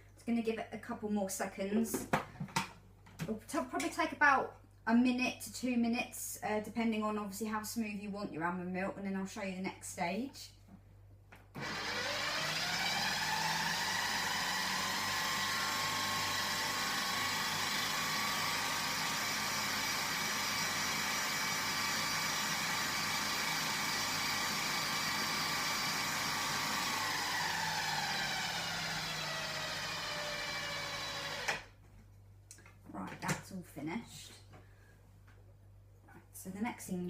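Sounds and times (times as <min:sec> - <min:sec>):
food processor motor whining: 0:11.6 - 0:31.7.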